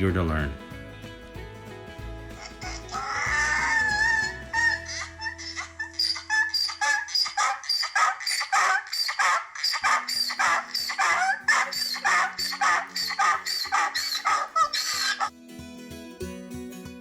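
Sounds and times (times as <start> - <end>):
upbeat music with chopped sounds: 0.0 - 5.1
sustained bass notes: 0.0 - 6.6.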